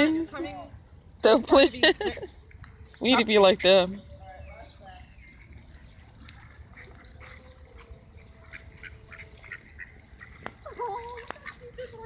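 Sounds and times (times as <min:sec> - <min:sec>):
ducks quacking: 0:06.2 - 0:12.0.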